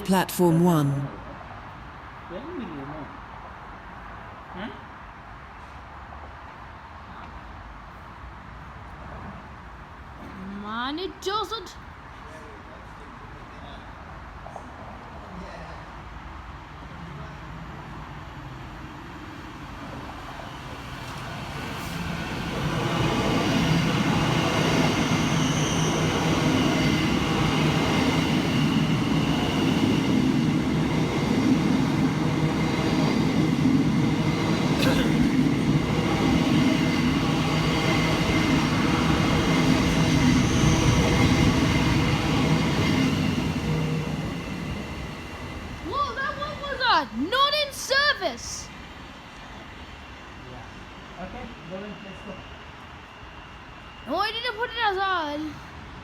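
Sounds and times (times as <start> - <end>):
train whine: 0.0 - 56.0
train wheels rumbling on rails: 15.9 - 54.7.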